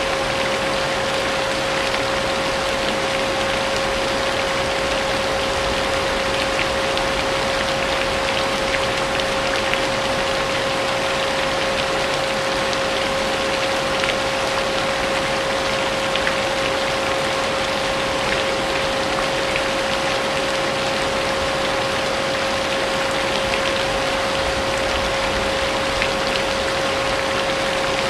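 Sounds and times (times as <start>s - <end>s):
steady rain: 0.0s - 28.0s.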